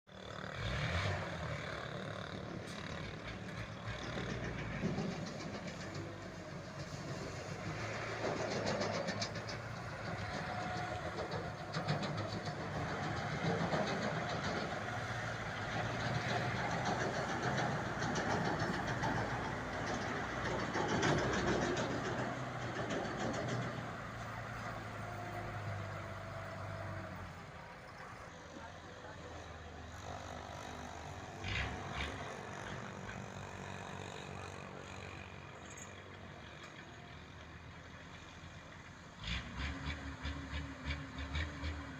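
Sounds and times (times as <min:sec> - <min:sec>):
truck engine humming: 0:00.1 - 0:39.2.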